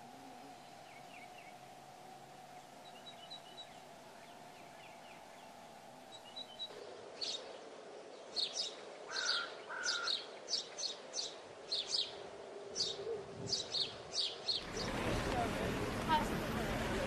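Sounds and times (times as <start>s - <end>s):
low whistled bird notes: 0.0s - 7.6s
steady background hum: 0.0s - 8.0s
small birds chirping: 0.0s - 17.0s.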